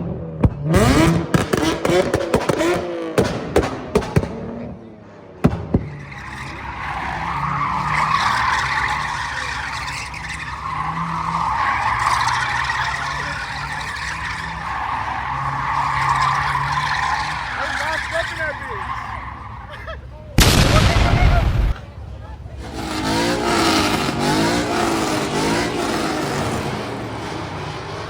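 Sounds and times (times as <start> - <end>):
car engine at high revs: 0.0 - 19.8, 22.5 - 28.0
car tires squealing: 5.7 - 21.8, 22.6 - 28.0.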